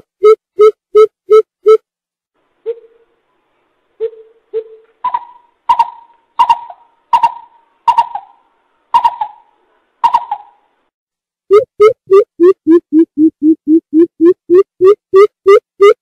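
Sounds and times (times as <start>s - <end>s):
coucal hooting: 9.0s - 10.6s.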